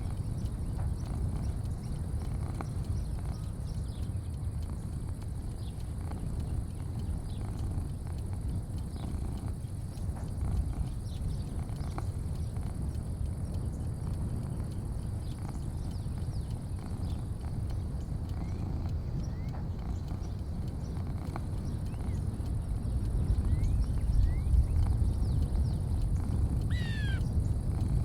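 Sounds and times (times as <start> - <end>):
faint chirps and ticks: 0.0 - 28.0
low rumble: 0.0 - 28.0.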